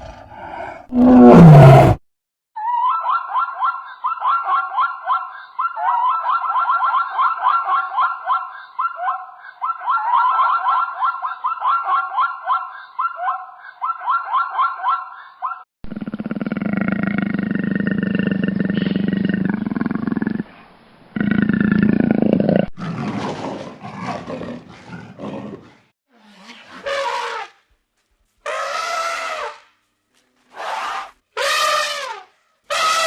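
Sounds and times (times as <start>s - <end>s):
deep animal roar: 0.0s - 2.0s, 15.9s - 20.6s, 21.2s - 25.9s.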